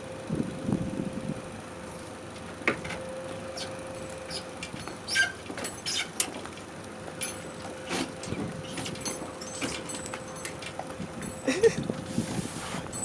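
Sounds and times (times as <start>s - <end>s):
electric golf cart whine: 0.0s - 13.0s
clicks and knocks from cart: 4.6s - 11.4s.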